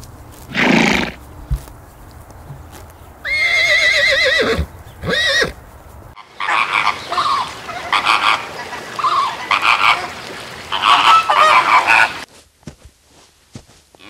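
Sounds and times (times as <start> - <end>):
flamingos honking: 6.2 - 12.3.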